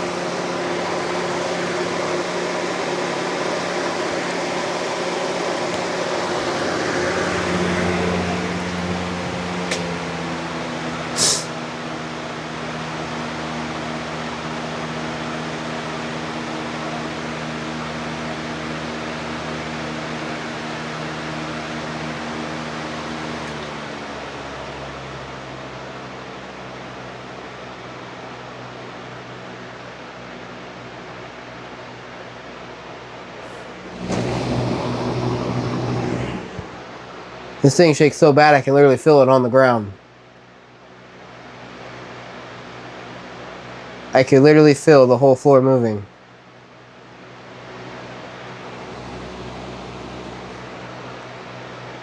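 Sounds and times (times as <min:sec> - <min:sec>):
box fan humming and rushing air: 0:00.0 - 0:39.4, 0:46.1 - 0:52.0
short hiss: 0:11.1 - 0:11.6.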